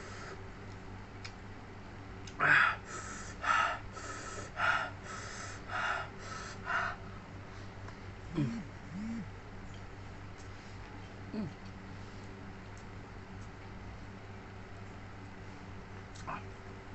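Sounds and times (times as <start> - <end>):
short humming vocal sound: 0.0 - 1.3, 2.2 - 9.6, 10.5 - 12.3, 15.6 - 16.9
person panting through mouth: 8.3 - 9.3.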